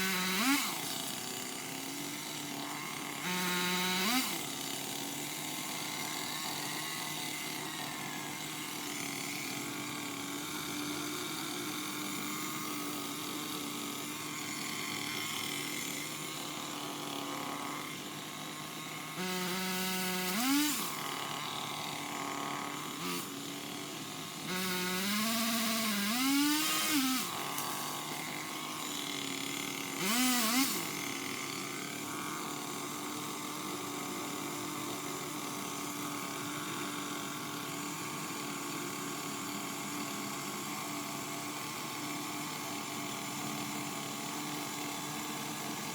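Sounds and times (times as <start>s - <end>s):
pole saw revving: 0.0s - 41.4s.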